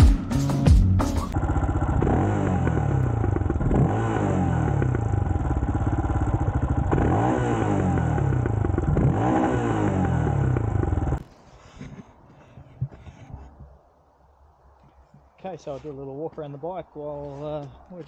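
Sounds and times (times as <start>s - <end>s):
single-cylinder motorcycle engine: 1.3s - 11.2s.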